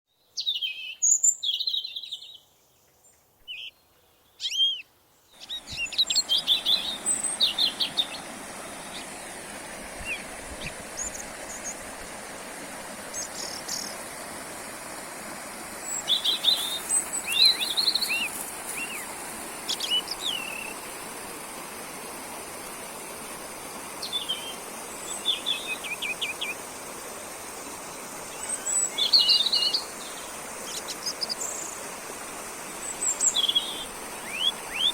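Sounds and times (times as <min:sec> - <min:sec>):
songbirds singing: 0:00.1 - 0:12.0, 0:13.1 - 0:14.1, 0:15.8 - 0:19.1, 0:19.7 - 0:20.9, 0:24.0 - 0:26.6, 0:28.3 - 0:31.8, 0:32.8 - 0:34.9
forest stream babbling: 0:03.2 - 0:34.9.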